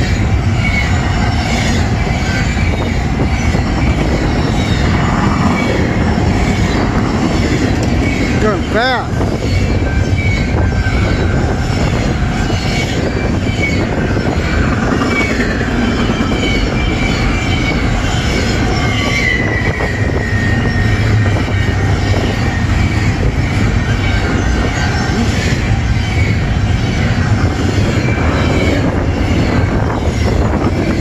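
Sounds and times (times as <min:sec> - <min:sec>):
freight train wheels on rails: 0:00.0 - 0:31.0
high wheel squeals: 0:00.0 - 0:31.0.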